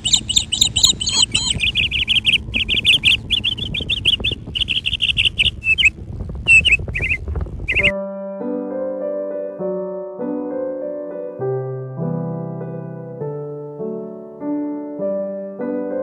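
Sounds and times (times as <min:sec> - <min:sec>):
birds chirping: 0:00.0 - 0:07.9
low rumble: 0:00.0 - 0:07.9.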